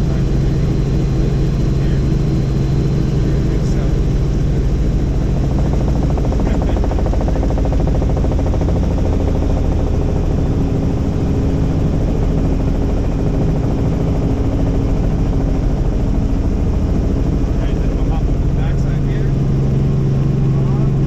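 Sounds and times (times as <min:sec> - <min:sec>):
helicopter rotor chop: 0:00.0 - 0:21.0
steady low hum: 0:00.0 - 0:21.0.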